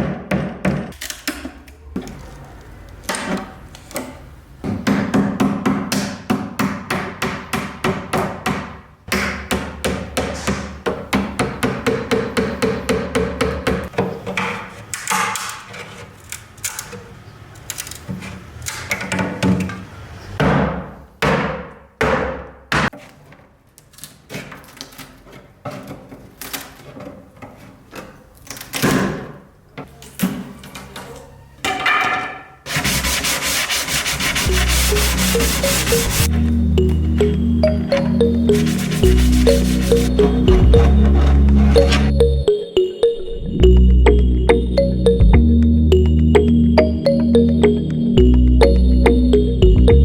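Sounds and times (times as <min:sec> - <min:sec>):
sandpaper rubbing on wood: 0:32.7 - 0:36.3, 0:38.6 - 0:40.1
background music: 0:34.3 - 0:50.0.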